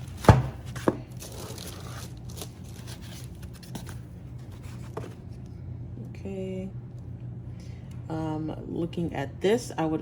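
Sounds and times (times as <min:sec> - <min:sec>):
packaging rustling: 0:00.0 - 0:04.6
low room hum: 0:00.0 - 0:10.0.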